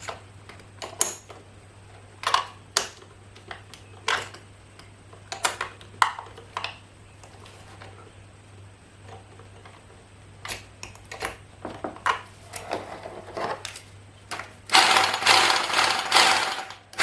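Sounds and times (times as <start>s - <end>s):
clicks and knocks of handling: 2.2s - 8.1s, 9.0s - 14.6s
rotary hammer drill rattling: 14.7s - 17.0s.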